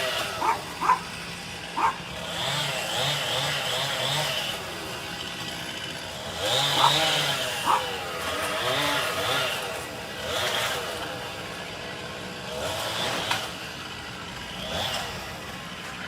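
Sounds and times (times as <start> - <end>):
chainsaw cutting wood: 0.0 - 16.0
dog barking: 0.1 - 1.2, 1.8 - 2.1, 6.5 - 8.0.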